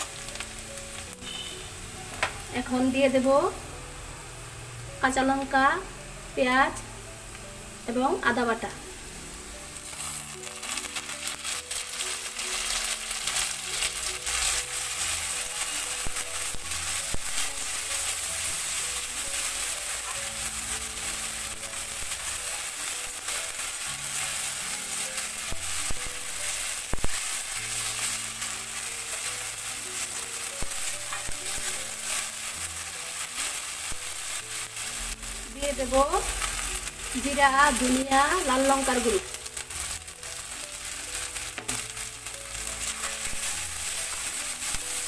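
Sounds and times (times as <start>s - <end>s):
paste sizzling in hot oil: 0.0s - 45.0s
wooden spatula stirring: 9.8s - 45.0s.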